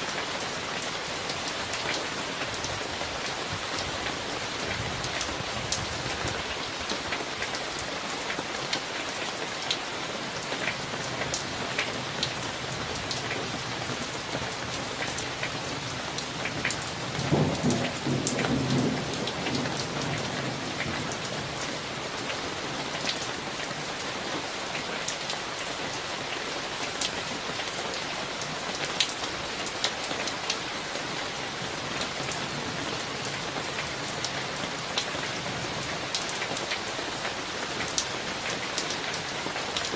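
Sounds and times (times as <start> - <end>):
raindrops ticking on a surface: 0.0 - 39.9
steady rain falling: 0.0 - 39.9
thunder rumbling: 17.0 - 20.9.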